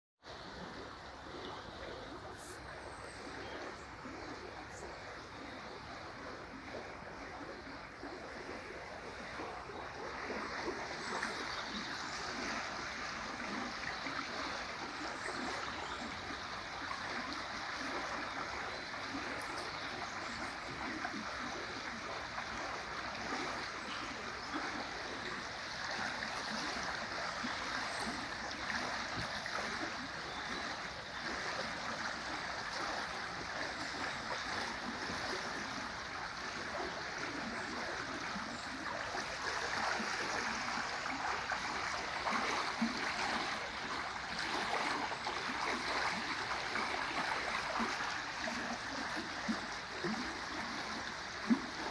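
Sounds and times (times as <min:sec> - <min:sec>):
river water rushing: 0:00.3 - 0:51.9.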